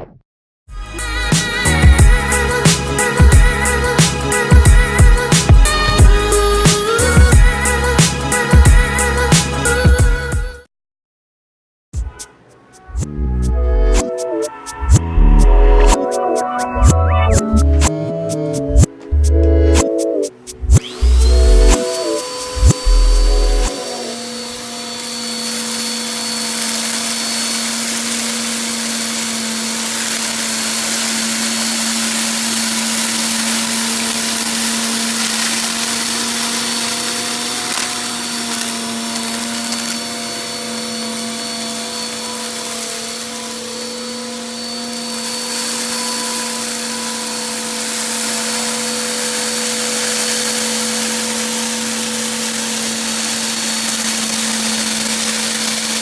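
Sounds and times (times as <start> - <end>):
vacuum cleaner running: 0.9 - 10.3, 20.6 - 56.0
dirt crunching in vacuum: 20.8 - 56.0.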